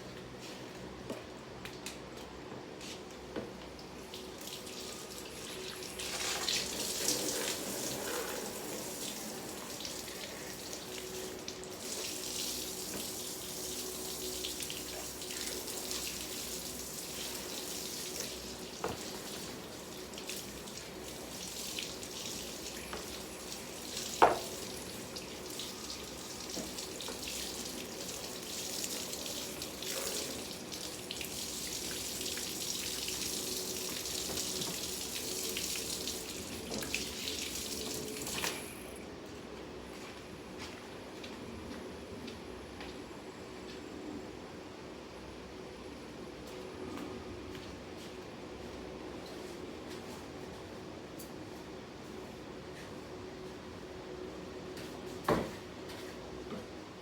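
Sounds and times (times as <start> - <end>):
tap water running into sink: 4.1 - 39.0.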